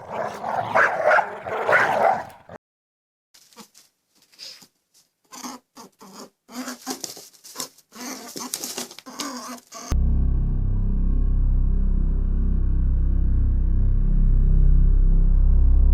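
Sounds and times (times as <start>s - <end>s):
small animal pattering and scuffling: 6.6s - 9.6s.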